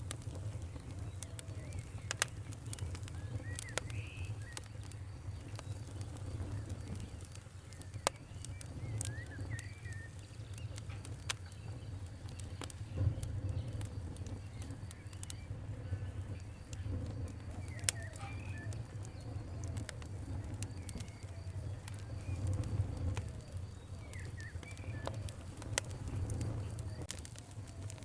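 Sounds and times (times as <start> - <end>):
sharp popping: 0.0 - 15.5, 16.2 - 28.0
fire crackling: 0.0 - 28.0.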